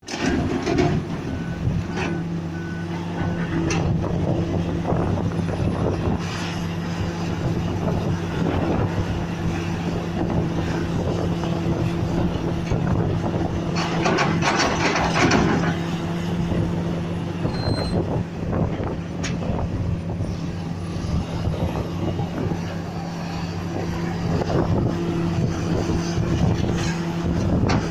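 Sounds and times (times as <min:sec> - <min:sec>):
diesel engine running: 0:00.0 - 0:27.9
reversing alarm beeping: 0:17.5 - 0:18.0
short high beep: 0:17.5 - 0:18.0.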